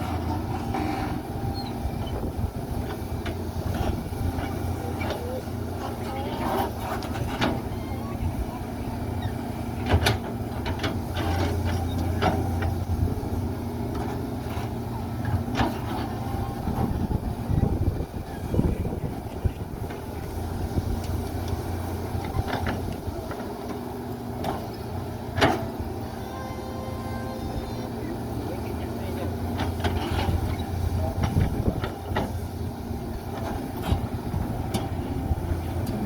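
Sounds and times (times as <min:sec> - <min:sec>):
diesel machinery running: 0:00.0 - 0:36.0.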